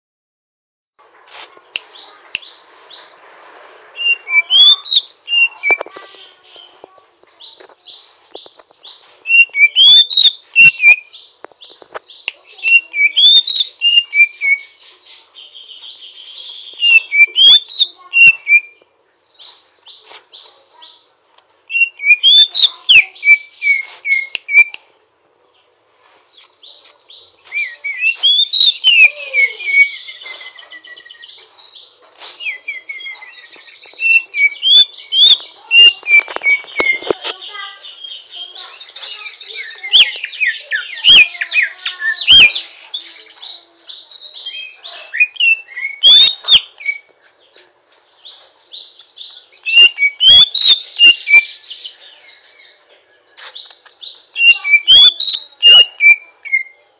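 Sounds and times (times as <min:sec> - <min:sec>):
bird chattering and whistling: 0:04.0 - 0:21.0, 0:21.7 - 0:24.8, 0:26.3 - 0:47.1, 0:48.2 - 0:56.8.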